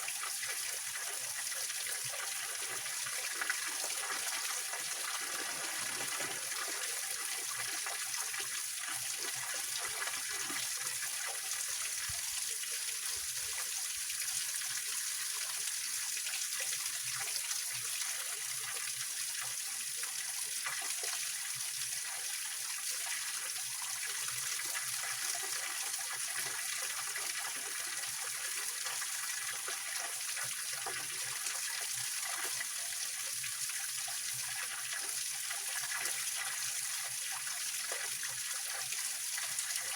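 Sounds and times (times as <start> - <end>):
stream splashing over rocks: 2.0 - 12.6.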